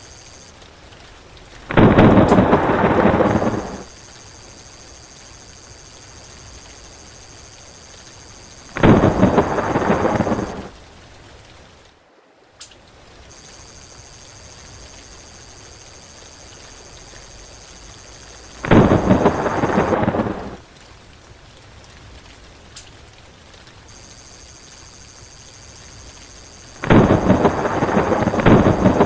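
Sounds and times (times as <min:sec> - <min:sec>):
steady rain: 0:00.0 - 0:29.0
thunder rumbling: 0:01.7 - 0:10.7, 0:13.3 - 0:20.6, 0:23.9 - 0:29.0.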